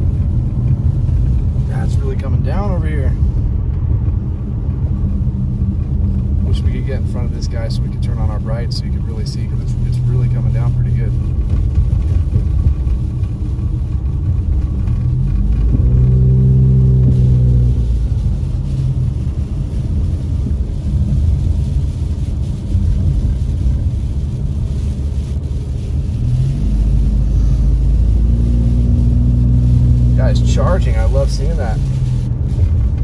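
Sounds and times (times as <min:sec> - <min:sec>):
car engine accelerating: 0:00.0 - 0:33.0
road noise inside car: 0:00.0 - 0:33.0.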